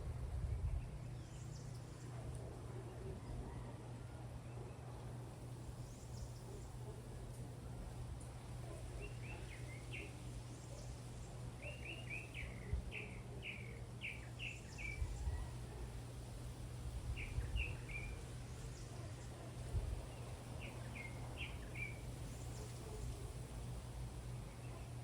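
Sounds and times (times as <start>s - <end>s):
bird chirping: 20.0s - 23.2s.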